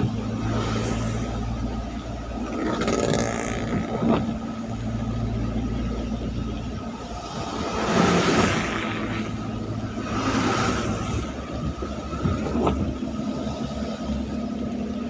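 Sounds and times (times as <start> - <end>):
tyres hissing on wet road: 0.0 - 3.7, 6.9 - 15.0
low engine hum: 0.0 - 15.0.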